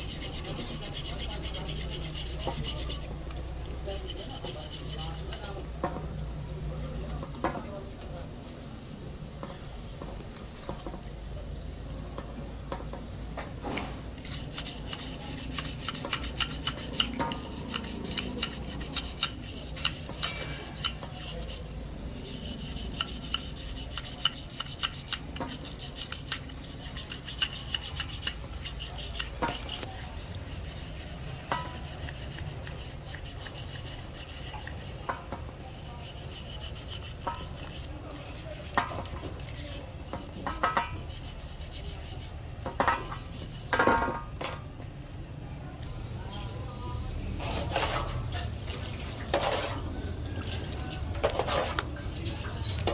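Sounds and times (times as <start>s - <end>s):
scraping and rubbing on metal: 0.0s - 6.0s, 13.6s - 44.6s, 47.4s - 48.6s, 49.2s - 49.9s, 51.2s - 52.9s.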